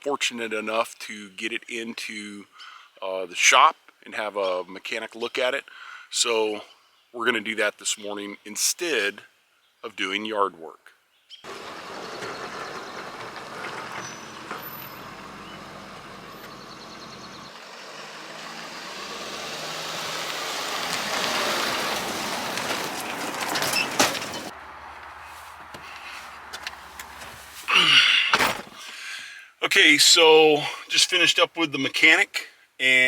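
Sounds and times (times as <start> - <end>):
vehicle engine and road noise: 11.4 - 29.0.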